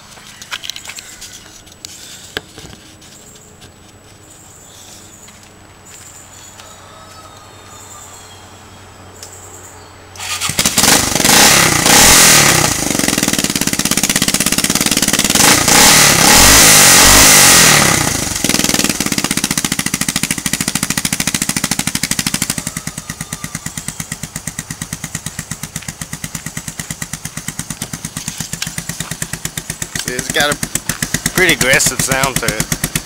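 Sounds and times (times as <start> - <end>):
atv engine revving: 10.1 - 33.0.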